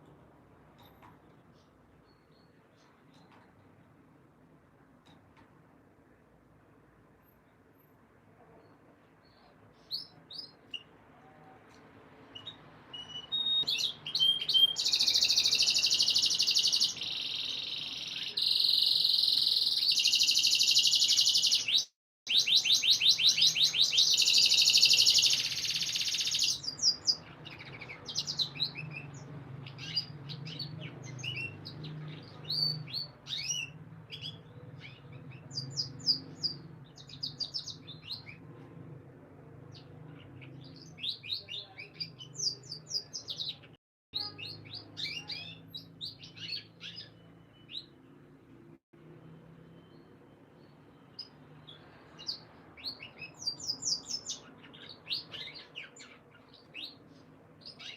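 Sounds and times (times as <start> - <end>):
canary singing with trills: 12.3 - 38.5, 39.7 - 48.6, 49.2 - 57.9.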